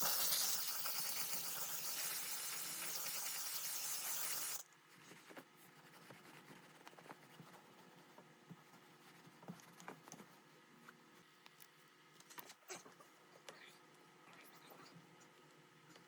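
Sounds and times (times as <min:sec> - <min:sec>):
loud steady hiss: 0:00.0 - 0:04.6.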